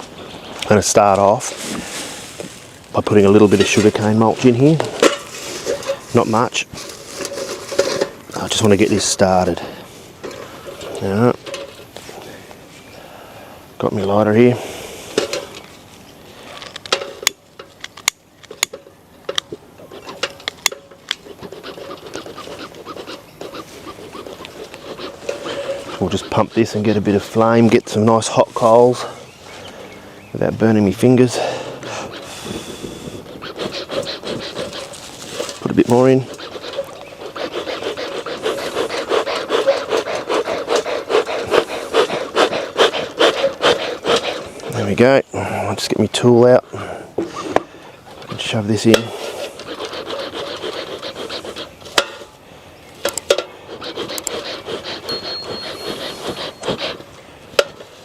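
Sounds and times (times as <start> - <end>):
bellows puffing rhythmically: 21.2 - 29.8, 31.0 - 45.6, 46.7 - 52.3, 53.4 - 57.9.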